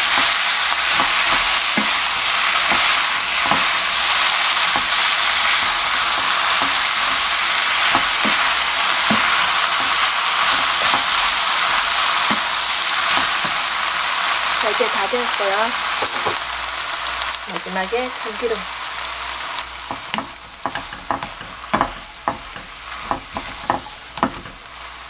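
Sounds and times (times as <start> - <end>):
spatula scraping a pan: 0.0 - 13.7, 19.8 - 25.0
food sizzling in a frying pan: 0.0 - 25.0.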